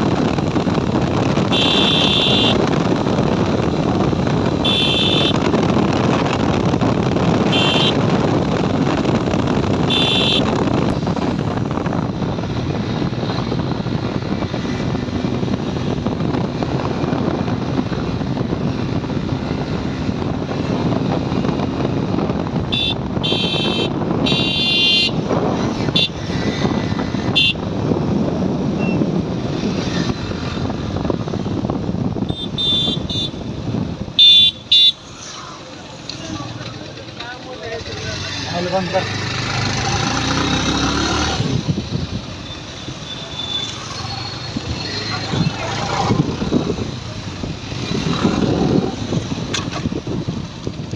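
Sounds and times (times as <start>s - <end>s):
wind on microphone: 0.0s - 34.8s, 39.2s - 43.1s, 44.2s - 50.9s
motorcycle engine and road rumble: 0.0s - 50.9s
short horn beeps: 32.3s - 33.4s.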